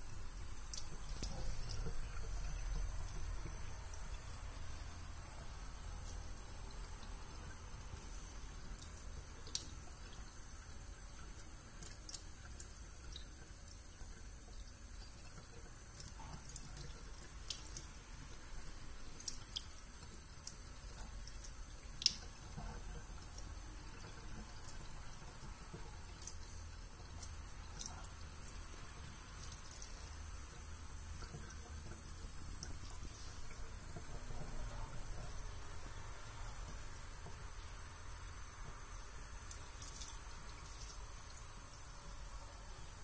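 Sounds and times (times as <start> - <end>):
steady low hum: 0.0 - 11.5
tap water dripping into sink: 0.0 - 43.0.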